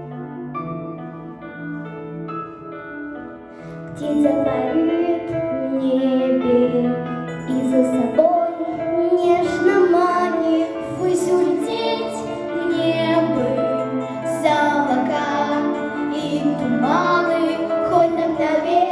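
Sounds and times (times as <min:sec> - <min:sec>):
girls singing a pop song: 0:03.9 - 0:18.9.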